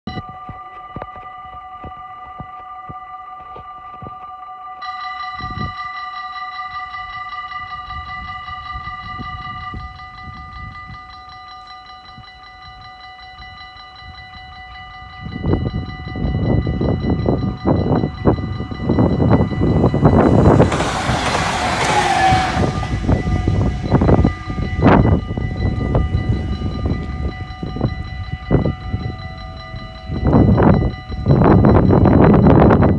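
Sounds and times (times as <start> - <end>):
level-crossing bells ringing: 0.1 - 32.9
train wheels clattering over rails: 18.9 - 26.0.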